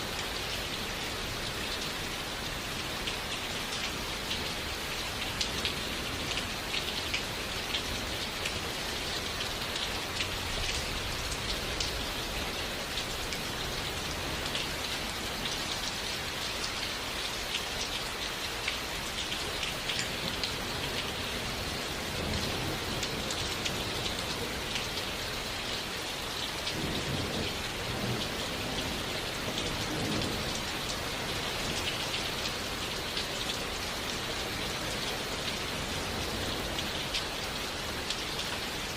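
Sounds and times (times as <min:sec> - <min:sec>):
steady rain falling: 0:00.0 - 0:38.9
low rumble of thunder: 0:26.6 - 0:32.0.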